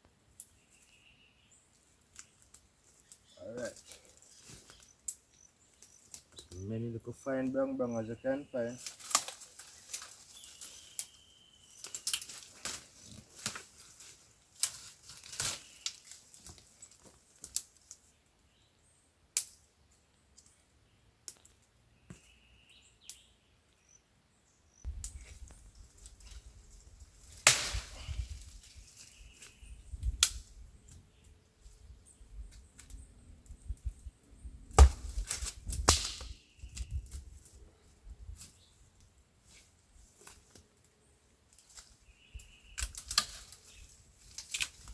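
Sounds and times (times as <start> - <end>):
twigs snapping by hand: 1.7 - 6.5, 8.8 - 18.1, 19.3 - 19.7, 21.2 - 22.3, 24.9 - 31.0, 34.7 - 37.5, 40.2 - 40.9, 41.5 - 44.9.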